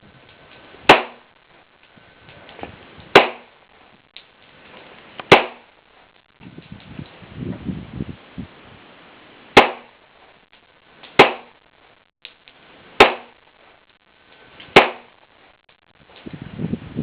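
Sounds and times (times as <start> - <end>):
handgun gunshots: 0.9 - 1.2, 3.2 - 3.5, 5.3 - 5.6, 9.6 - 9.9, 11.2 - 11.5, 14.8 - 15.1.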